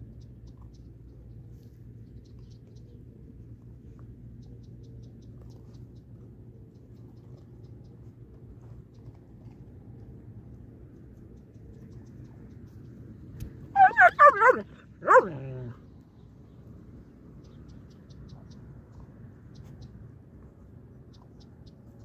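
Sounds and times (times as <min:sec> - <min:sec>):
dog yelping: 0:13.8 - 0:15.8.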